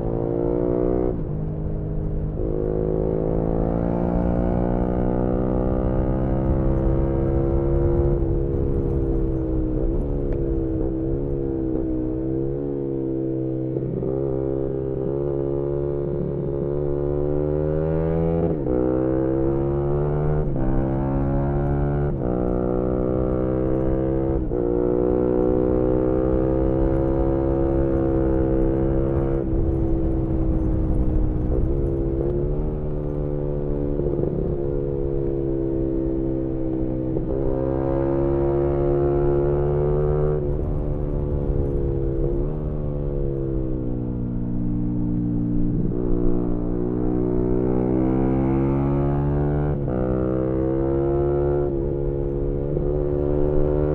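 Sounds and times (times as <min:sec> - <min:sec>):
wind noise: 0:00.0 - 0:53.9
motorcycle engine revving: 0:02.3 - 0:53.9.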